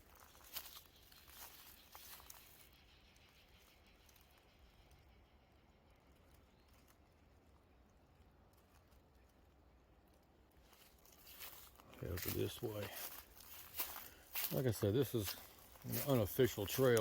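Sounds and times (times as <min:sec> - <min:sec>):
footsteps crunching on leaves: 0:00.0 - 0:02.7, 0:10.7 - 0:17.0.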